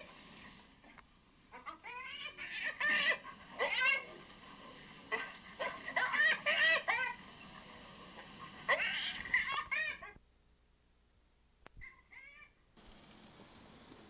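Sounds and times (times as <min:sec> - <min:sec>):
animal cries gliding in pitch: 0:08.7 - 0:10.2.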